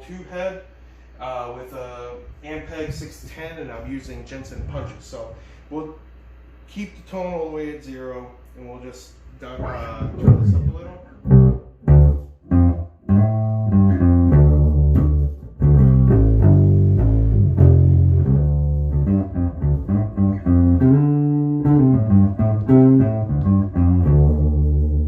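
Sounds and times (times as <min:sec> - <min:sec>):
electric bass notes and riffs: 0:09.5 - 0:25.0.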